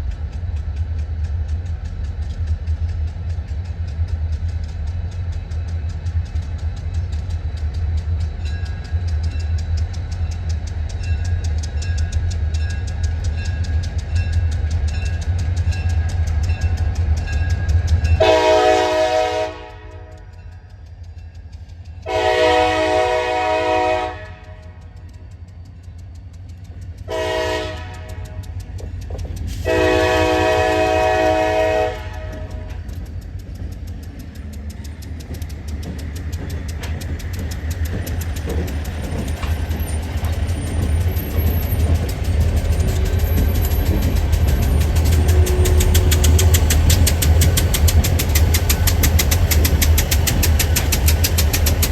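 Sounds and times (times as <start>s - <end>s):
diesel locomotives rumbling: 0.0s - 51.9s
train horn blasts: 18.2s - 20.3s, 22.0s - 25.0s, 27.1s - 28.6s, 29.6s - 32.9s, 45.0s - 46.5s.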